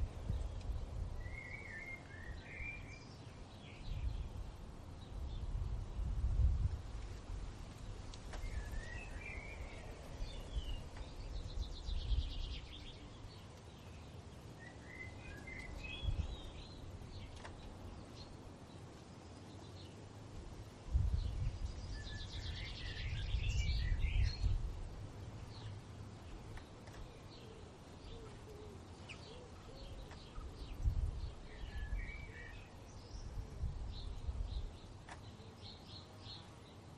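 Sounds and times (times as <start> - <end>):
gusting wind rumble: 0.0 - 1.4, 3.8 - 13.3, 15.7 - 17.9, 20.4 - 25.7, 30.3 - 35.0
songbirds twittering: 0.0 - 36.9.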